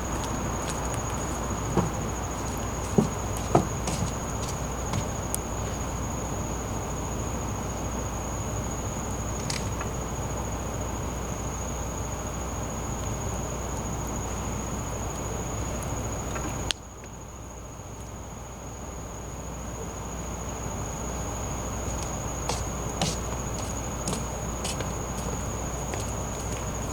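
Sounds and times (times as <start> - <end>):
insect chirring: 0.0 - 7.2, 8.4 - 10.7, 20.2 - 26.9.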